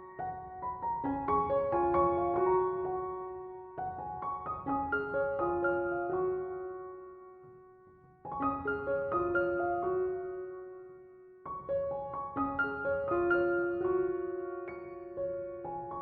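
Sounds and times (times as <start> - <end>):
soft piano music: 0.0 - 16.0.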